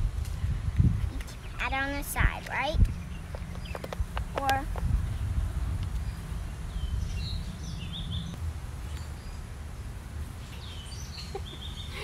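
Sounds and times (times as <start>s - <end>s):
low steady rumble: 0.0s - 10.7s.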